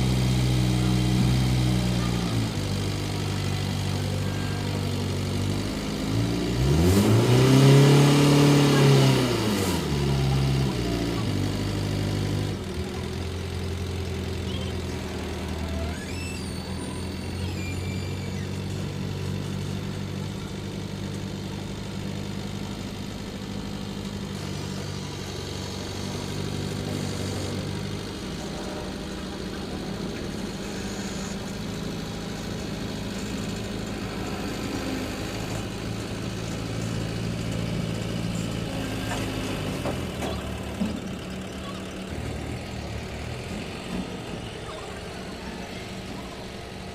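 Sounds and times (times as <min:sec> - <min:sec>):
truck diesel engine running: 0:00.0 - 0:46.9.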